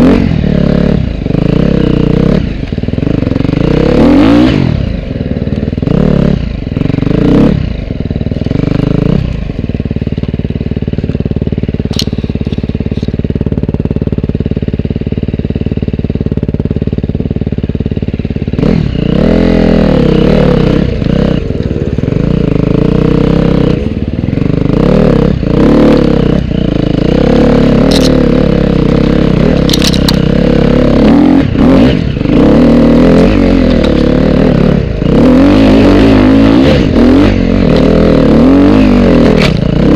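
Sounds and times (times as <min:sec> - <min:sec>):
dirt bike engine revving: 0:00.0 - 0:10.0, 0:10.7 - 0:39.9.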